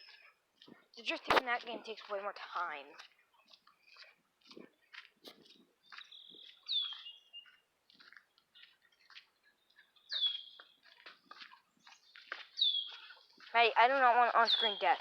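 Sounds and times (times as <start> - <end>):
short bird chirps and ticks: 5.4 - 13.5.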